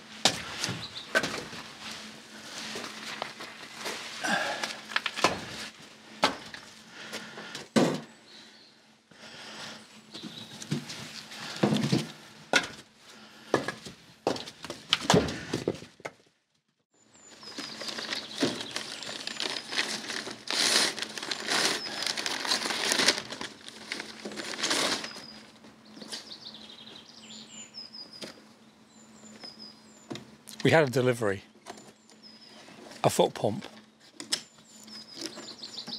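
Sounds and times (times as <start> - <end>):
rustling and crinkling: 0.4 - 7.3, 17.2 - 26.4
small birds chirping: 9.7 - 10.7, 17.0 - 20.2, 25.0 - 30.6, 31.6 - 33.1, 34.4 - 35.9.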